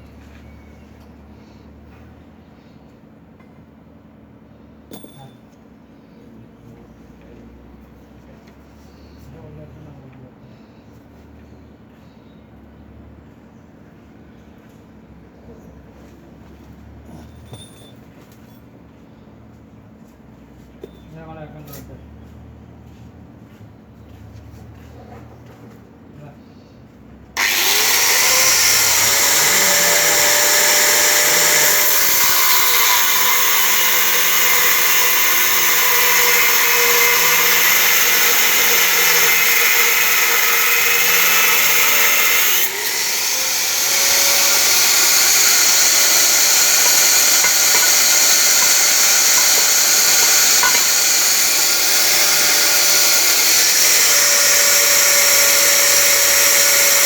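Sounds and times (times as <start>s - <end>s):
electric power tool whining: 27.4s - 57.0s.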